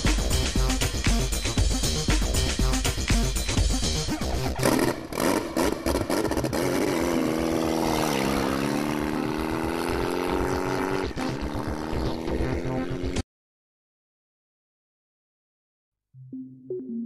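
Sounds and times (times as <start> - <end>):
motorcycle engine revving hard: 4.2 - 13.2.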